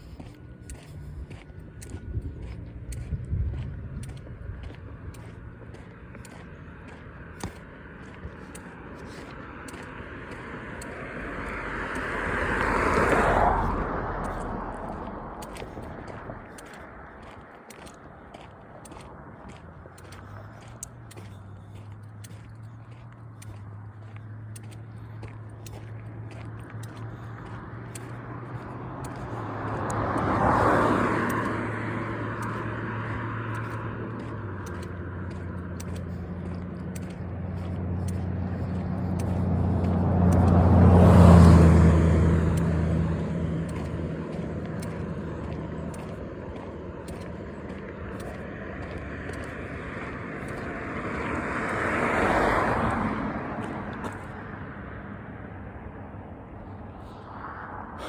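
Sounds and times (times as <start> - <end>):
deep engine hum: 0.0 - 58.0
vehicles passing on road: 0.0 - 58.0.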